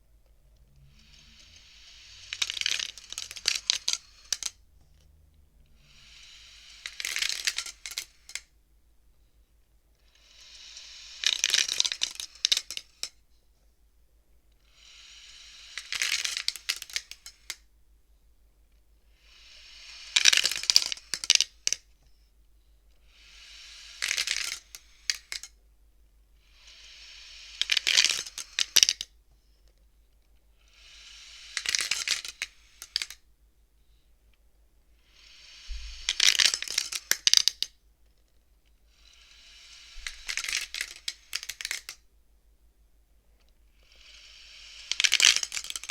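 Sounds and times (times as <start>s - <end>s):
wooden abacus beads sliding: 0.6s - 8.5s, 10.0s - 13.2s, 14.6s - 17.7s, 19.2s - 21.9s, 23.0s - 25.6s, 26.4s - 29.1s, 30.6s - 33.2s, 35.0s - 37.8s, 38.9s - 42.1s, 43.4s - 45.9s.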